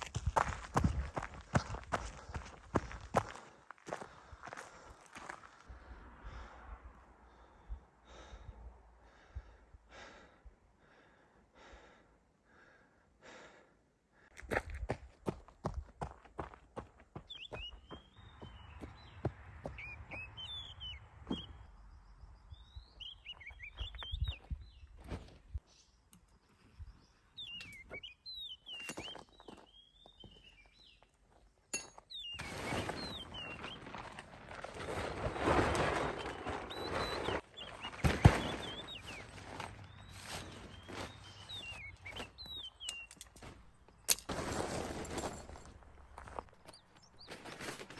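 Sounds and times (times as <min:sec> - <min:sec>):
footsteps on forest ground: 0:00.0 - 0:05.8, 0:14.3 - 0:21.7, 0:23.0 - 0:25.8, 0:26.4 - 0:31.6, 0:32.2 - 0:47.9
bird whistling descending notes: 0:17.3 - 0:21.6
crackles underfoot: 0:32.4 - 0:47.9.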